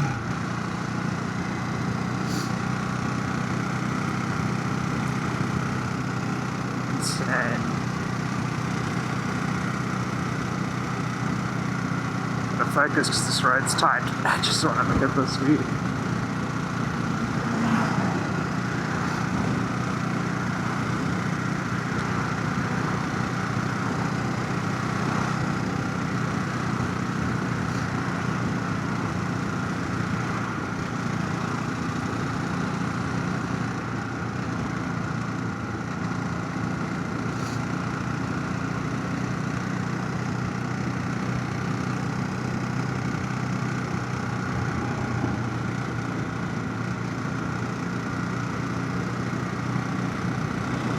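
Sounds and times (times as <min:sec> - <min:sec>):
motorcycle engine humming: 0:00.0 - 0:50.9.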